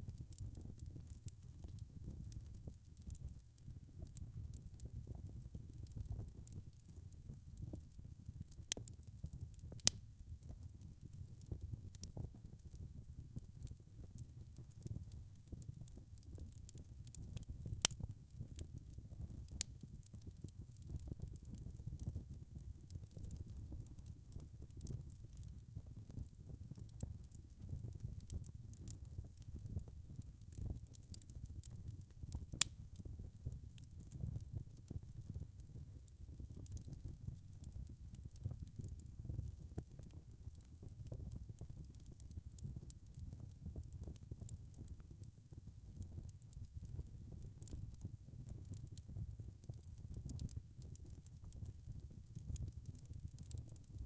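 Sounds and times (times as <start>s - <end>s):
fire crackling and popping: 0.0s - 54.0s
wood fire rumbling: 32.3s - 33.1s, 52.6s - 53.8s.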